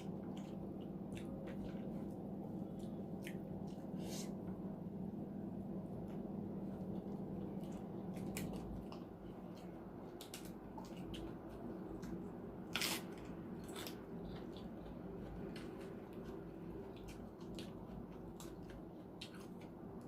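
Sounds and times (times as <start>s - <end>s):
wet chewing: 0.0s - 4.2s, 6.1s - 20.0s.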